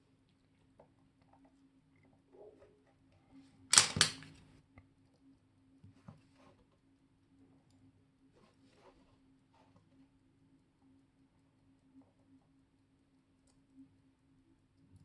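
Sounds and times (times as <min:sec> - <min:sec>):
sharp metallic clicks: 0:03.7 - 0:04.3.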